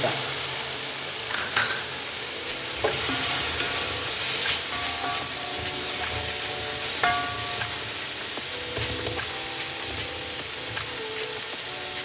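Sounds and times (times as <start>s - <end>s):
food sizzling in a pot: 0.0s - 12.0s
soft background music: 2.3s - 12.0s.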